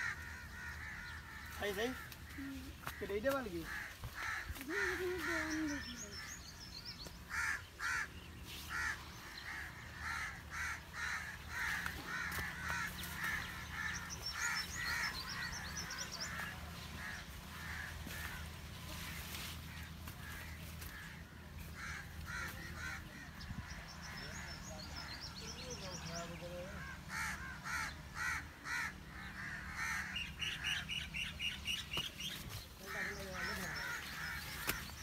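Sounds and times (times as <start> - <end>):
plants rustling: 15.4 - 23.0, 31.9 - 35.0.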